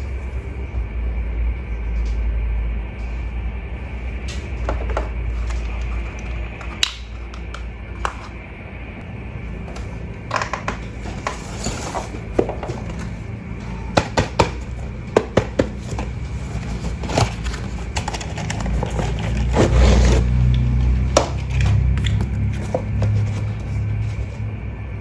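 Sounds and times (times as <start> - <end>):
low hum: 0.0 - 25.0
toy handling clicks and knocks: 14.0 - 19.8.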